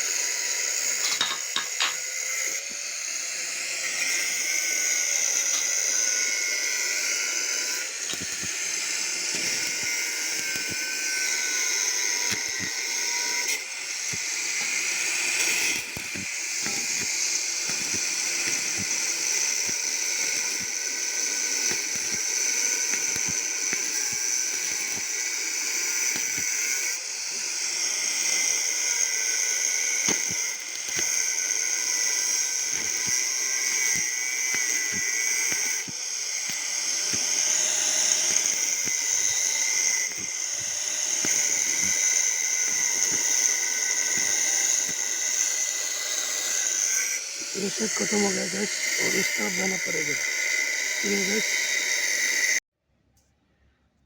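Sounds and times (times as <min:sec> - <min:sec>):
welding arc crackling hiss: 0:00.0 - 0:52.6.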